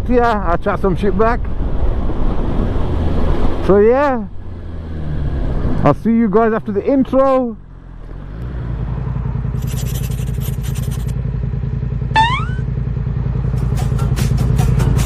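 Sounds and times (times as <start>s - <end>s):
motorcycle engine running: 7.7s - 15.0s
brief rising chirp: 12.2s - 12.7s.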